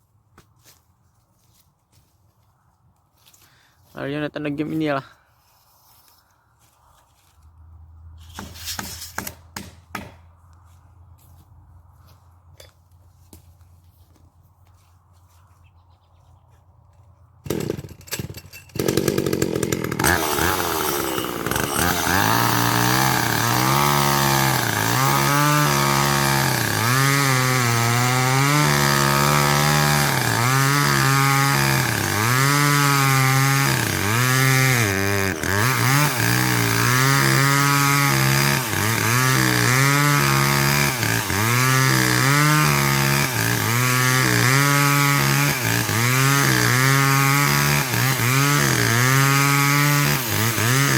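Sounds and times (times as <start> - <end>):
chainsaw cutting wood: 8.2 - 10.3, 17.4 - 50.9.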